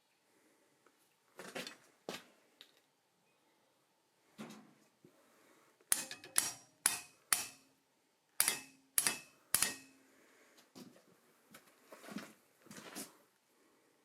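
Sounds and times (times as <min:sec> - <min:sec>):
hammer striking steel on anvil: 0:05.9 - 0:07.8, 0:08.4 - 0:10.0.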